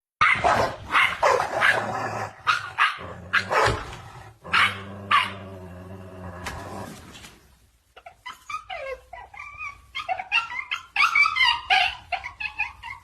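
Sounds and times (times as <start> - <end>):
dog barking: 0.2 - 1.8, 2.5 - 3.9.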